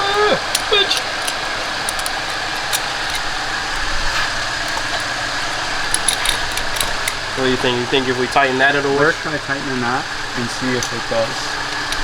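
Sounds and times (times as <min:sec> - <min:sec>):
fuel hissing from loose fitting: 0:00.1 - 0:08.2.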